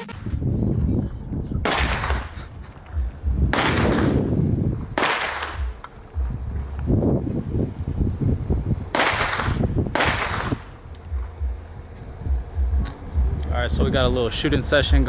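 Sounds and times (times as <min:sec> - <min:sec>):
steady low rumble: 0:00.0 - 0:15.0
gunshots with echo: 0:01.6 - 0:06.1, 0:08.9 - 0:10.8.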